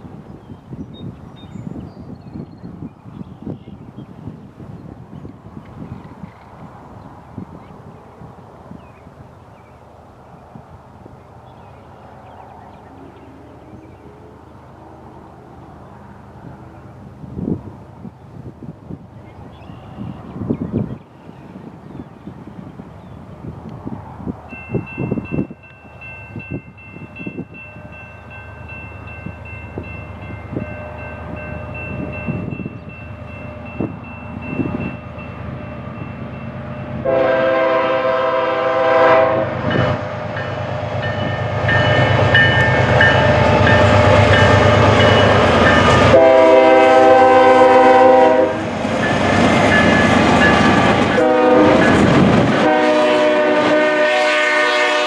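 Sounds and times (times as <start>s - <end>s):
freight train engine rumble: 0.0s - 55.0s
train wheel noise: 22.3s - 55.0s
locomotive air horn: 37.0s - 40.2s, 43.8s - 48.7s, 50.6s - 55.0s.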